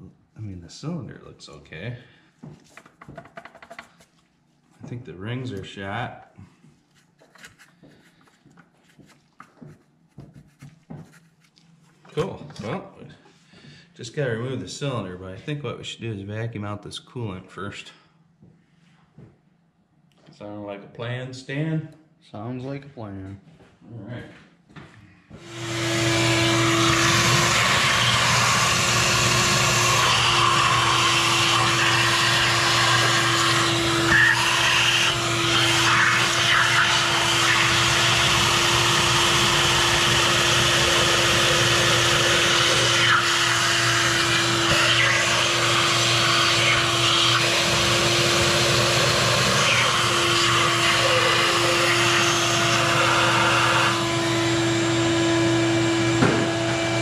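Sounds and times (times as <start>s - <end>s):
vacuum cleaner whining: 25.3s - 57.0s.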